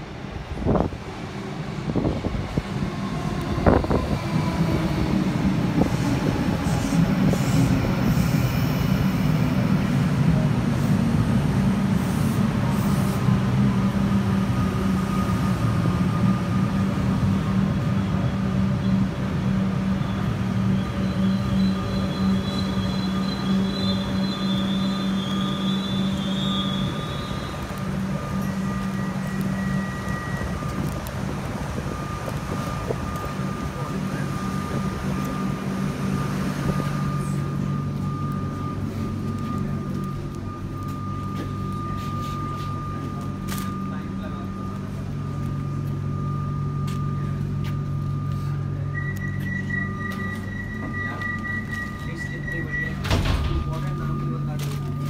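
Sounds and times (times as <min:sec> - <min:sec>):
metro train humming: 0:00.0 - 0:55.0
thin high whistles: 0:48.4 - 0:53.1.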